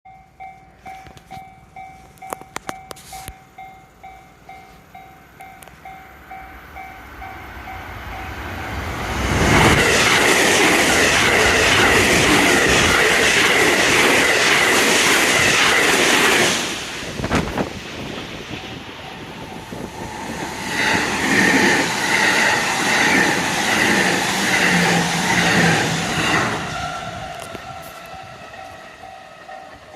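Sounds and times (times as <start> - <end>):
level-crossing warning bell dinging: 0.0 - 9.1, 18.2 - 29.9
train wheels rushing on rail: 0.5 - 29.9.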